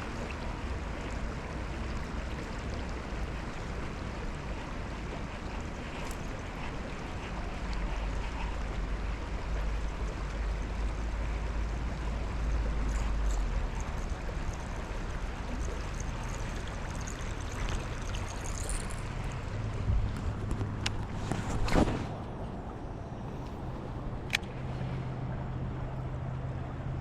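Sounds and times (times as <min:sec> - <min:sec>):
water noise: 0:00.0 - 0:27.0
wind rumble on microphone: 0:00.0 - 0:27.0.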